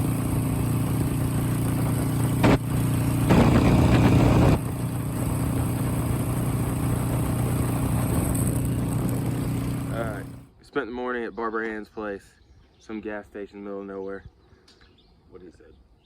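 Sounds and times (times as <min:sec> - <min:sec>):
motorcycle engine running: 0:00.0 - 0:10.5.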